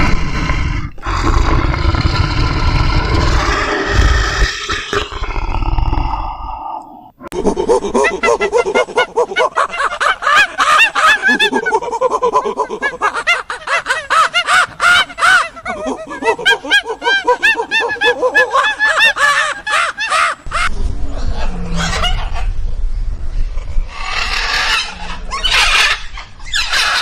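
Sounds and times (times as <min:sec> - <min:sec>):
low noisy animal sound: 0:20.6 - 0:27.0
birds calling rapidly: 0:23.9 - 0:27.0.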